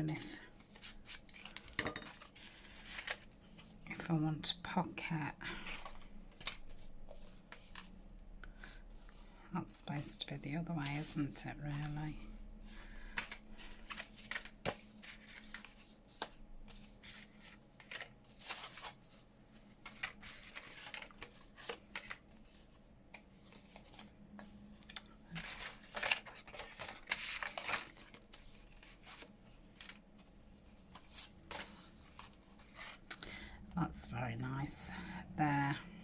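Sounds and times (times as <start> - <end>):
paper rustling: 0.1 - 4.1, 10.8 - 33.4.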